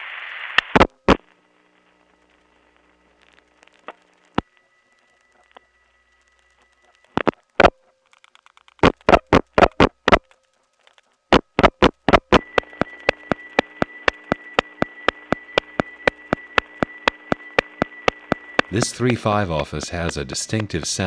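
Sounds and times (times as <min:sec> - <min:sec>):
line hiss and hum: 0:00.0 - 0:21.0
steady ticking on phone line: 0:12.0 - 0:21.0.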